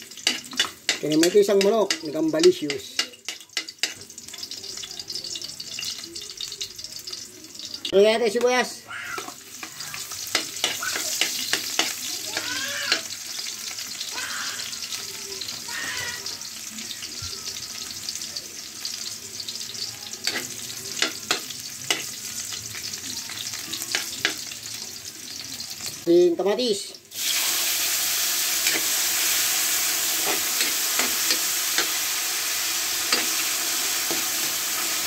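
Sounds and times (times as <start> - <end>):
onion sizzling in hot oil: 0.0 - 35.0
metal spatula clicking on pan: 0.2 - 4.0, 10.3 - 13.1, 20.2 - 22.1.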